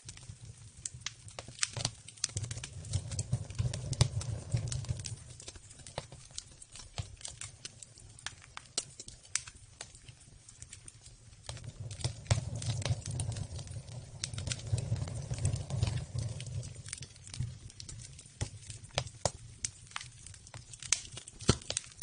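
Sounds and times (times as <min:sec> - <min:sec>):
campfire crackling and popping: 0:00.0 - 0:22.0
low rumble: 0:11.6 - 0:17.1.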